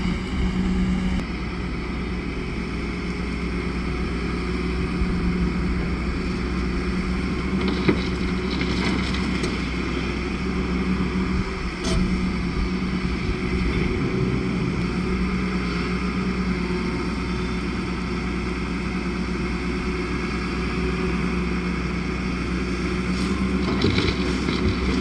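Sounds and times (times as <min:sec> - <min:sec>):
diesel engine running under load: 0:00.0 - 0:25.0
short metal clanks: 0:11.8 - 0:12.2.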